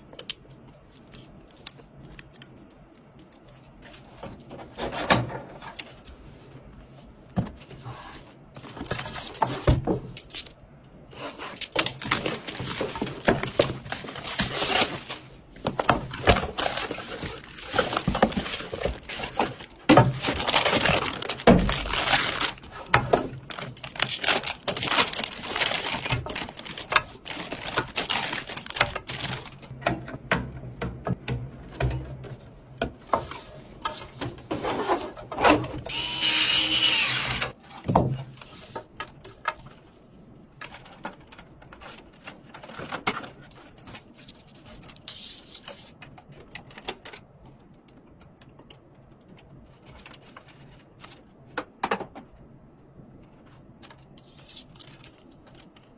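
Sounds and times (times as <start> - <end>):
small motor whirring: 35.9 - 37.5.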